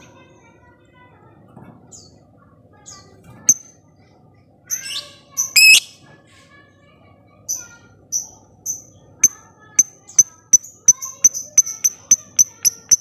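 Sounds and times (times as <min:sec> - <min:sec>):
bird chirping: 0:04.7 - 0:06.0
bird screeching: 0:04.8 - 0:05.9.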